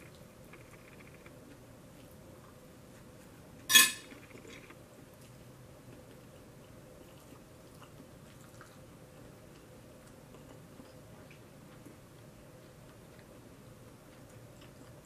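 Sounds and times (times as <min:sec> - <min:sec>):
steady low hum: 0:00.0 - 0:15.0
closed-mouth chewing: 0:04.1 - 0:15.0.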